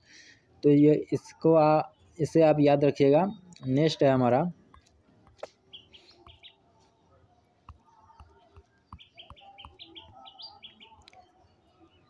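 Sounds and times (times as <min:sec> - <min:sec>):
faint bird chirping: 0:00.0 - 0:12.0
soft clicks: 0:10.9 - 0:11.3.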